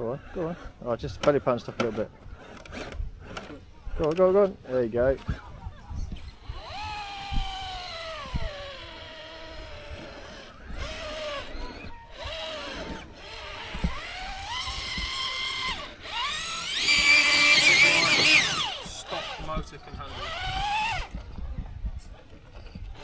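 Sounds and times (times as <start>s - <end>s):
electric motor whining: 0.0s - 21.6s.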